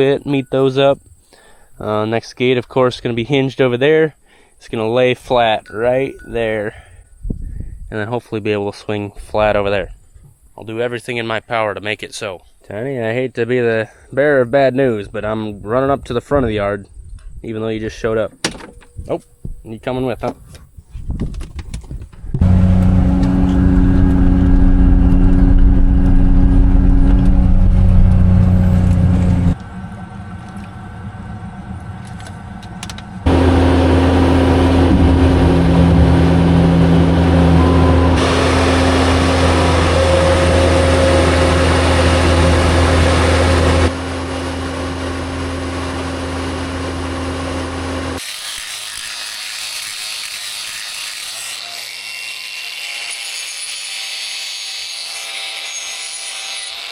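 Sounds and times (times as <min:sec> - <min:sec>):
vehicle engine running: 0:22.4 - 0:48.2.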